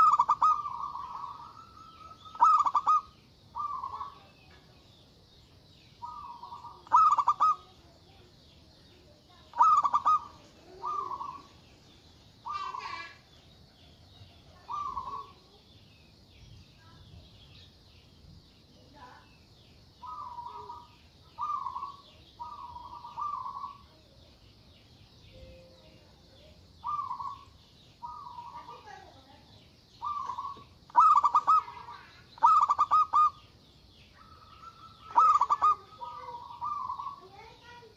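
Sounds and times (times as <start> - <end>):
dove cooing: 0.0 - 4.4, 6.0 - 7.8, 9.5 - 11.6, 12.4 - 13.2, 14.5 - 15.4, 20.0 - 24.0, 26.8 - 29.1, 30.0 - 33.5, 34.2 - 37.8.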